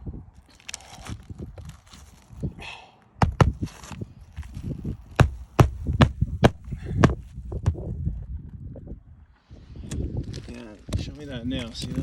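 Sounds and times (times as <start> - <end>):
hammer striking nail: 3.2 - 3.7, 5.2 - 7.2.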